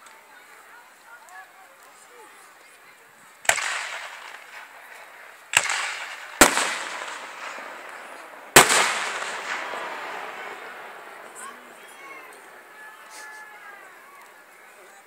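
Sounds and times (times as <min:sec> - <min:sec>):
firework shells bursting: 0:03.4 - 0:12.6.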